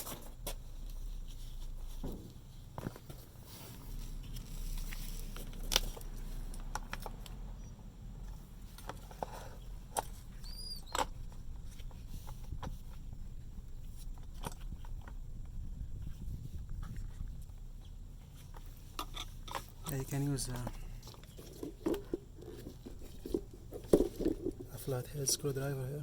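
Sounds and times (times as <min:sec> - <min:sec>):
low steady hum: 0:00.0 - 0:26.0
clicks and knocks of parts handled: 0:08.3 - 0:13.0, 0:18.4 - 0:24.8
high squeak: 0:10.4 - 0:11.0.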